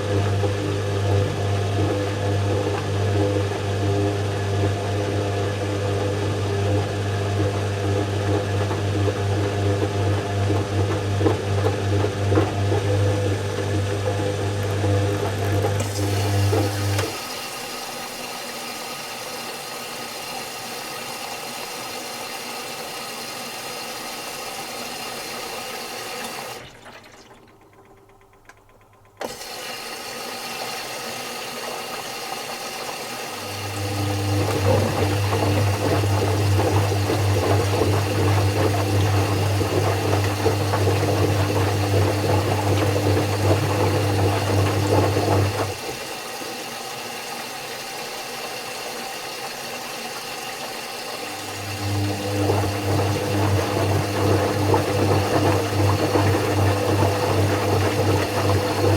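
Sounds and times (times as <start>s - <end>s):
washing machine running: 0.0s - 58.9s
water noise: 33.4s - 46.5s, 50.5s - 58.9s.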